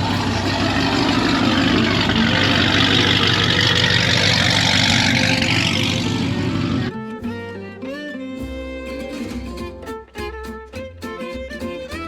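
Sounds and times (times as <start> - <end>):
car engine running: 0.0 - 7.1.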